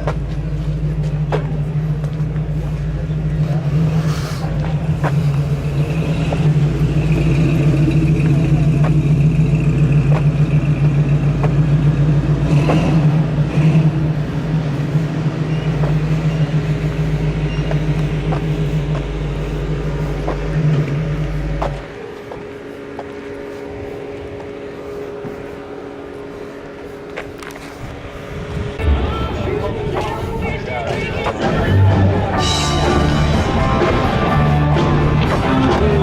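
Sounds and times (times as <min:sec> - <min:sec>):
vehicle engine running: 0:00.0 - 0:36.0.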